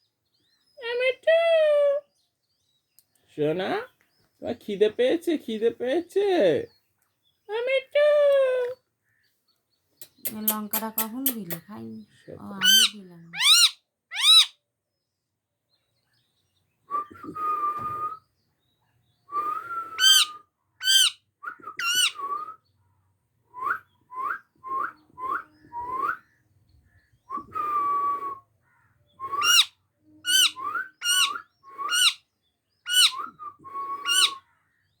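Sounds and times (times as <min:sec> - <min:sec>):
parrot whistling: 0:20.0 - 0:21.1, 0:21.8 - 0:22.2, 0:29.3 - 0:29.7, 0:30.3 - 0:32.2, 0:32.9 - 0:33.3, 0:33.9 - 0:34.4.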